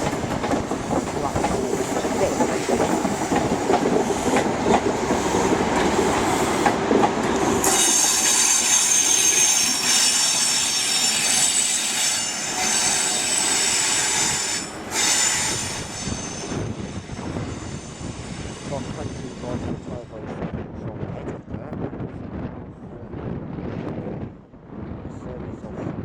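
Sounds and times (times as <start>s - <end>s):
train wheels clattering: 0.0s - 16.7s
train wheel squeal: 7.4s - 19.6s.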